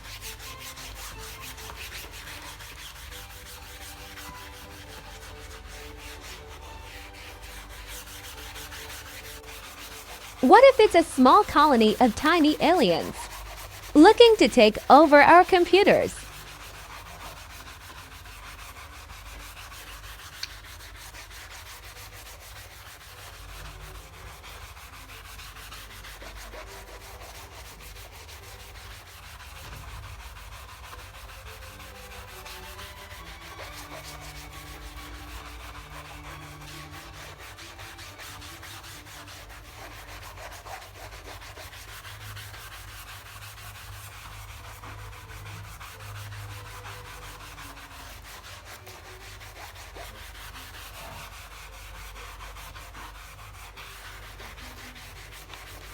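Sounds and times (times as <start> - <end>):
scrubbing soapy fabric pad: 39.0 - 55.9.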